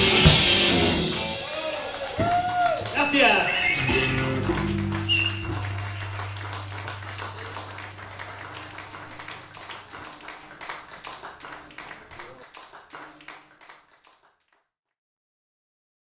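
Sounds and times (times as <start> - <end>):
audience clapping: 0.0 - 14.7
low amplifier note ringing: 3.8 - 9.9.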